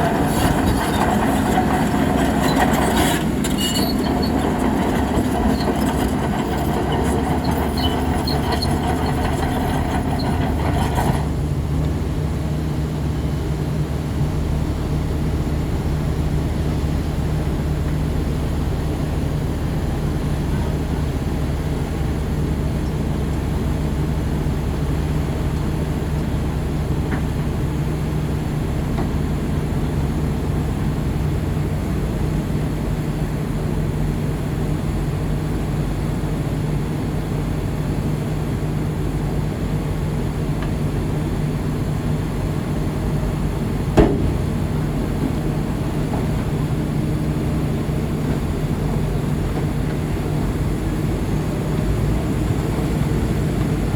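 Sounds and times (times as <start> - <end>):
crawler tracks clanking and squeaking: 0.0 - 12.0, 40.6 - 53.9
bulldozer diesel engine running: 0.0 - 53.9.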